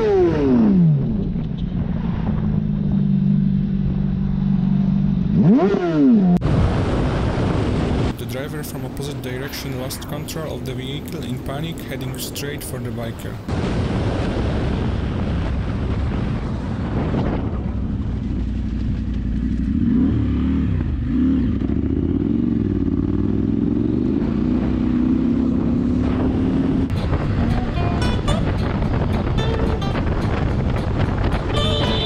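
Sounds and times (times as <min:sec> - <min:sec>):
motorcycle engine revving: 0:00.0 - 0:06.4, 0:17.8 - 0:32.0
wind and road noise: 0:00.0 - 0:32.0.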